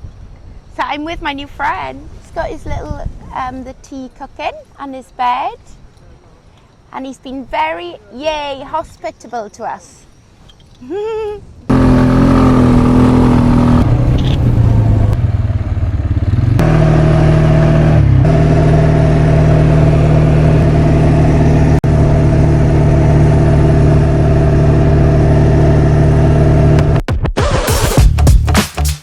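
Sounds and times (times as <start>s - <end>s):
quad bike engine running: 11.7s - 27.0s.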